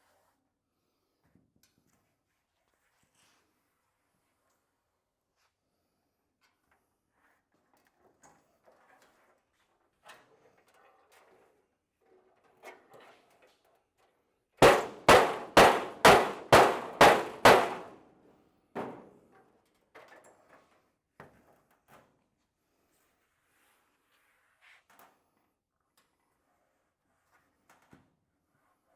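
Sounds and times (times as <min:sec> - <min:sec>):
hammer blows on steel: 0:14.6 - 0:18.0, 0:18.8 - 0:19.1
quiet knocks and panel handling: 0:18.8 - 0:19.0.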